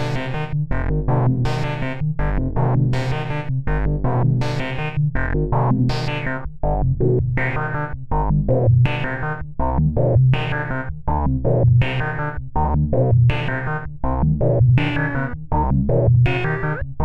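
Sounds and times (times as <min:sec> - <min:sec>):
steady low bass tone: 0:00.0 - 0:17.0.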